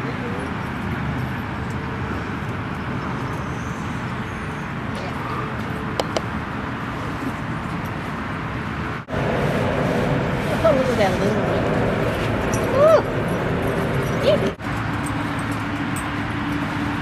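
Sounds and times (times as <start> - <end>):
outdoor rumble and hiss: 0.0 - 17.0.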